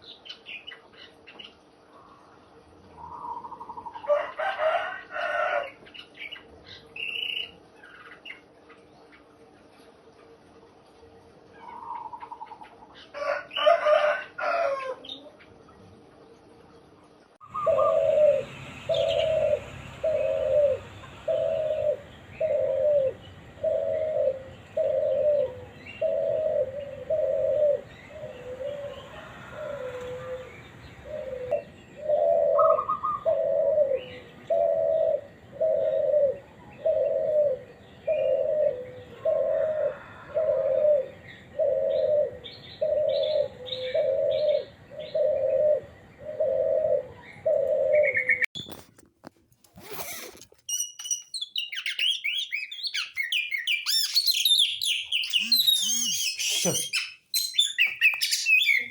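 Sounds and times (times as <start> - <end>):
short high bird chirps: 50.6 - 58.9.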